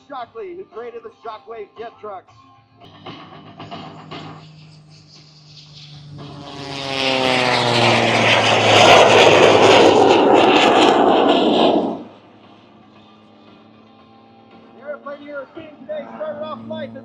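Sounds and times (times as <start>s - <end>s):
loud rushing jet noise: 2.9s - 12.5s
plane radial engine passing: 2.9s - 17.0s.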